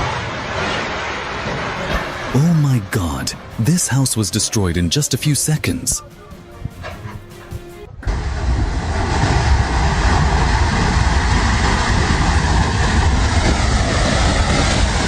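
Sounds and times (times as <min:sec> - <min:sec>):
floodwater rushing roar: 0:00.0 - 0:05.0, 0:08.0 - 0:15.0
heavy low rumble: 0:00.0 - 0:15.0.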